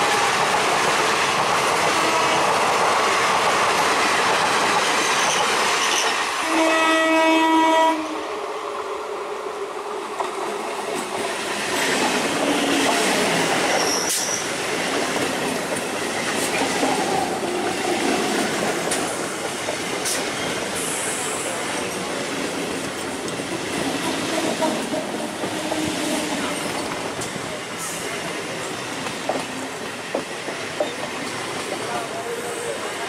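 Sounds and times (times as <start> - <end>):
train wheels rumbling on rails: 0.0 - 33.0
clicks of wheels on rail joints: 10.2 - 28.4, 29.0 - 32.0
high wheel squeal: 13.8 - 14.5.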